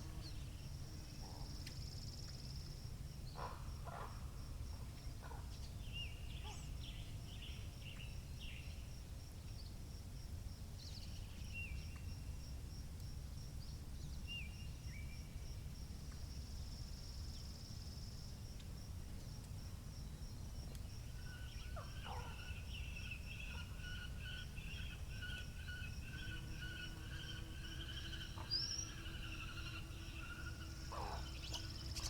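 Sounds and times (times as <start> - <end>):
low rumble of wind: 0.0 - 32.0
small birds chirping: 20.1 - 32.0
bird warbling song: 21.2 - 32.0.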